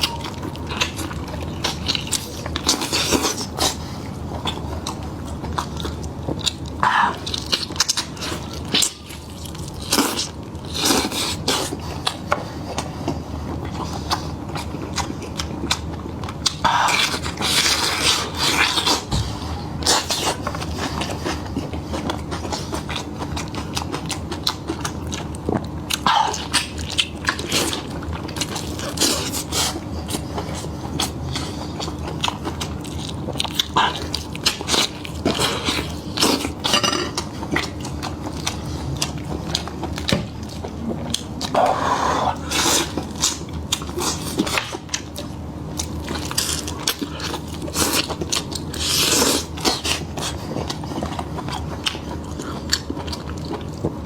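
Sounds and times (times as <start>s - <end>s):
person chewing meat: 0.0s - 54.0s.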